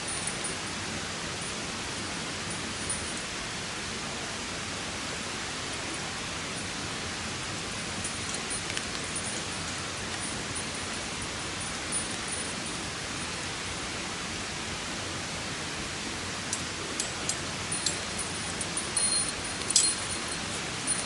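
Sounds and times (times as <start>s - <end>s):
background hiss: 0.0s - 21.0s
tinkling chime-like notes: 8.0s - 13.4s, 17.0s - 21.0s.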